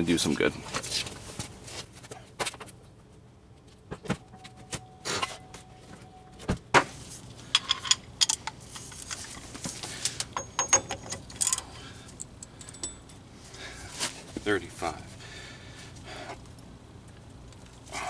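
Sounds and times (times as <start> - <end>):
metal tools clinking: 7.4 - 13.8.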